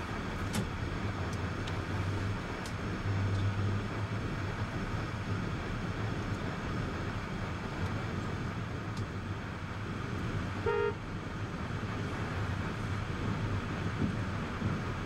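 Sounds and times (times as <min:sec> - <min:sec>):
vehicle and road noise: 0:00.0 - 0:15.0
car horn toot: 0:10.6 - 0:11.0.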